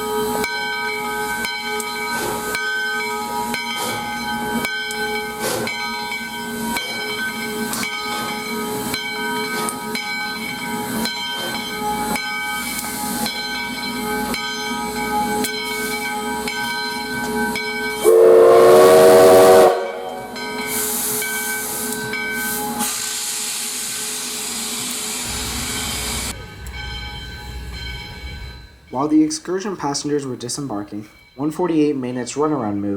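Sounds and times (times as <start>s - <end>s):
steam locomotive hissing: 0.0s - 32.4s
steam whistle blast: 18.0s - 26.5s.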